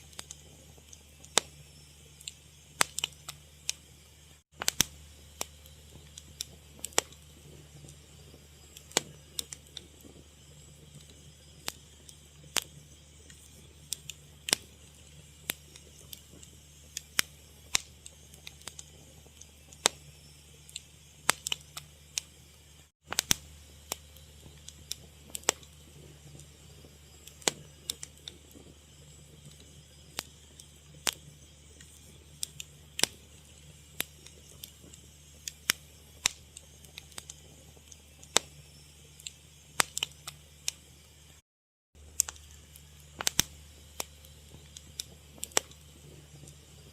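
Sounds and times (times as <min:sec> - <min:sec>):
sharp pops: 0:00.0 - 0:03.8, 0:04.5 - 0:20.1, 0:20.7 - 0:22.3, 0:23.0 - 0:26.5, 0:27.2 - 0:28.7, 0:38.2 - 0:38.6, 0:39.2 - 0:40.9, 0:42.1 - 0:46.7
fire crackling: 0:00.0 - 0:41.4, 0:42.0 - 0:46.9
low steady hum: 0:00.0 - 0:41.4, 0:42.0 - 0:46.9.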